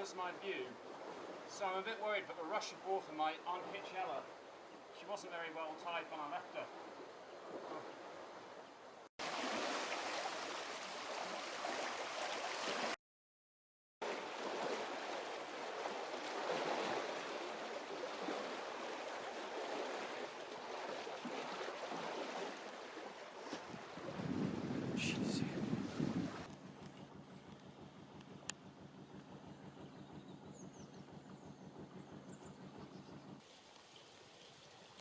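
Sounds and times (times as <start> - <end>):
water gushing into canal lock: 9.2 - 13.0, 14.0 - 26.5, 33.3 - 35.0.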